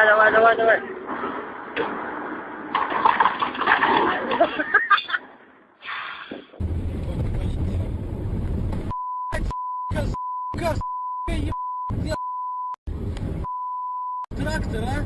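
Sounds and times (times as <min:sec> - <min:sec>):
vehicle rumble: 0:06.6 - 0:12.2, 0:12.9 - 0:13.6, 0:14.3 - 0:15.0
voices: 0:09.3 - 0:12.2, 0:14.3 - 0:15.0.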